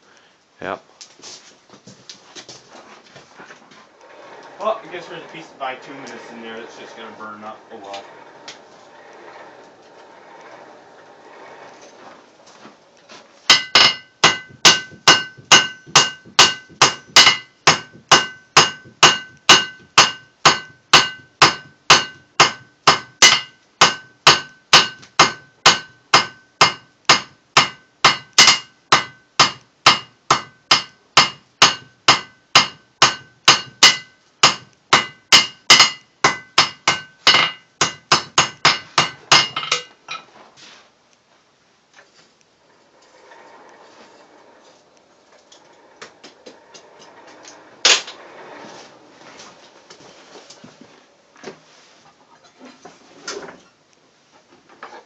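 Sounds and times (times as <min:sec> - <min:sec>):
hammer striking steel on anvil: 0:13.5 - 0:39.9.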